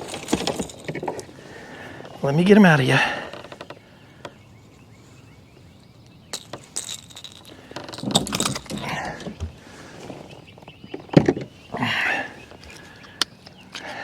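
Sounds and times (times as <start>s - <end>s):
metal hooks clinking and rattling: 0.0s - 1.3s, 6.3s - 9.4s
handling and shuffling noise: 0.0s - 1.4s, 6.4s - 10.8s.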